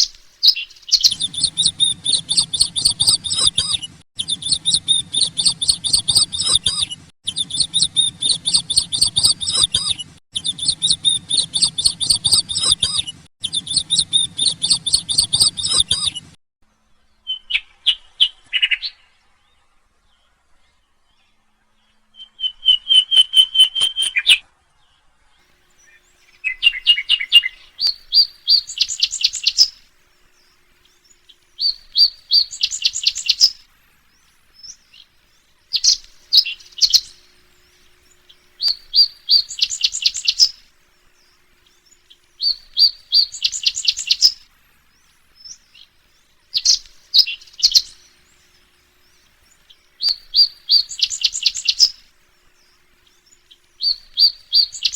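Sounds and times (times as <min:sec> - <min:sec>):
songbird chirping: 0:00.0 - 0:54.9.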